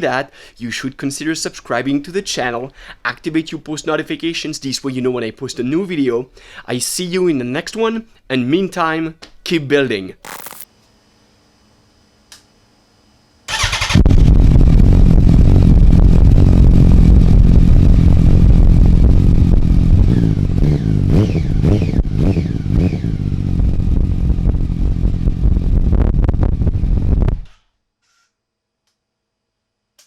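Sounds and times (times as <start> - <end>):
sport motorcycle engine revving: 13.5 - 25.5.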